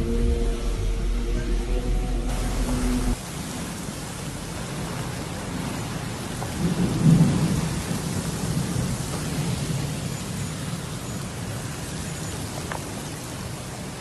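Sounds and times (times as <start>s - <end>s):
heavy rain falling: 0.0s - 14.0s
thunder rumbling: 0.0s - 14.0s.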